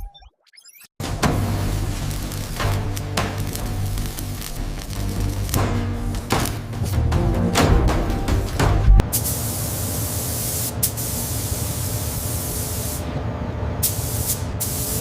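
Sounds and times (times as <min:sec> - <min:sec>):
spraying hiss: 0:01.2 - 0:06.6, 0:09.1 - 0:13.0, 0:13.8 - 0:15.0.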